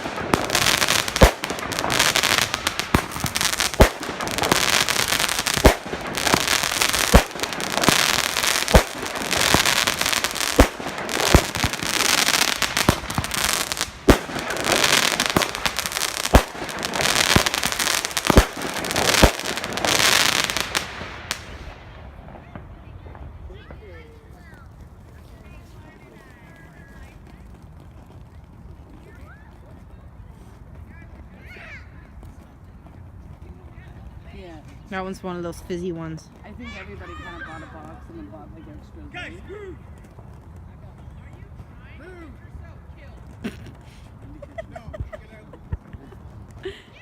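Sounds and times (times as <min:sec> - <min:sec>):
firework bangs: 0:00.0 - 0:24.6
fireworks crackling and fizzing: 0:00.0 - 0:47.0.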